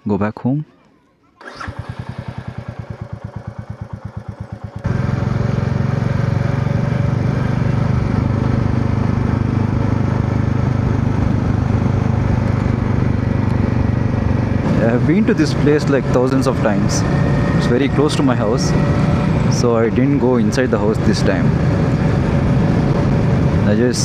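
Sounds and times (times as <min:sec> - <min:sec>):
motorcycle engine idling: 0:01.4 - 0:24.0.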